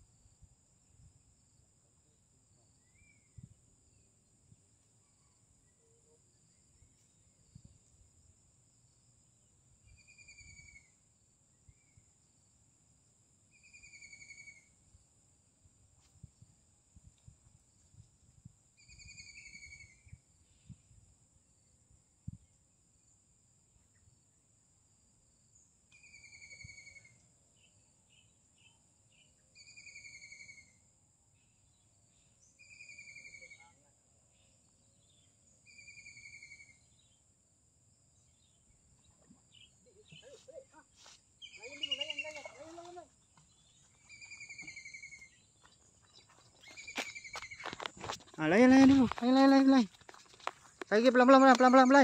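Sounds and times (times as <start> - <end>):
bird calling: 41.4 - 49.6.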